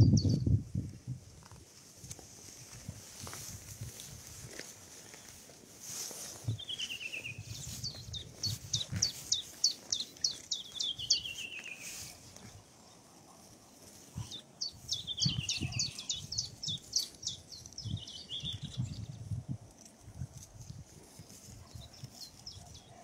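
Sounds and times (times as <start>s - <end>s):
songbird singing: 0.0s - 0.5s, 6.2s - 19.5s, 21.3s - 23.0s
footsteps on dry ground: 1.2s - 18.9s.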